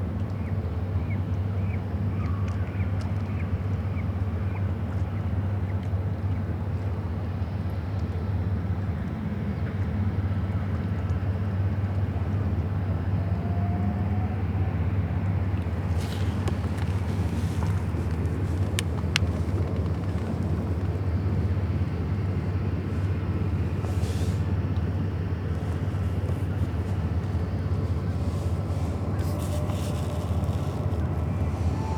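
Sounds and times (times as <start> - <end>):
low engine drone: 12.2 - 31.9.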